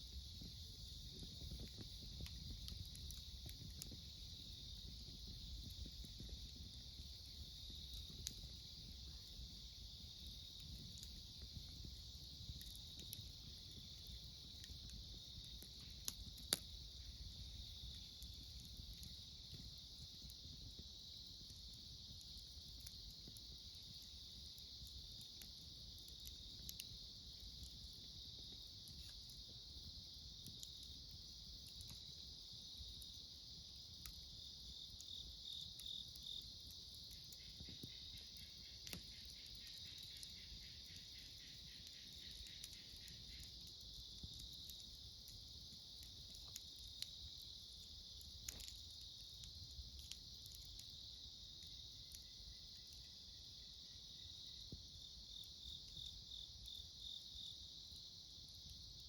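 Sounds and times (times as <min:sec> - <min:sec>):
campfire popping: 0:00.0 - 0:59.0
crickets chirping: 0:00.0 - 0:59.0
insect pulsed trill: 0:34.4 - 0:44.9.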